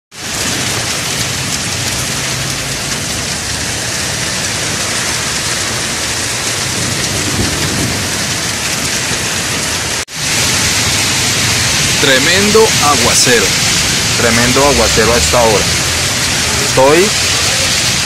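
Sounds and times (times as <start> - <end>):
heavy rain on wet street: 0.1 - 18.0.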